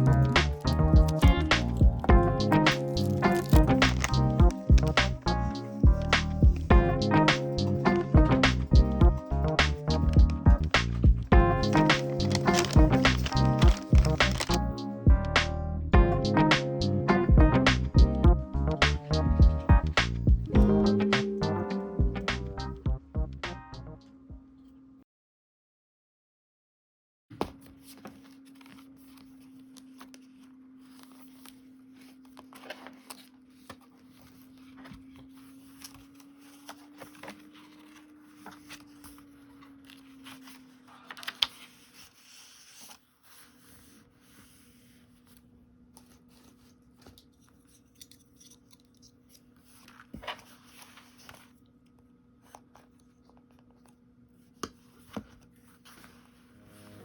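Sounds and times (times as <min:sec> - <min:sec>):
paper being cut: 0:00.0 - 0:06.7, 0:11.6 - 0:14.6
paper rustling and tearing: 0:00.0 - 0:08.1, 0:11.6 - 0:14.8, 0:27.6 - 0:51.6.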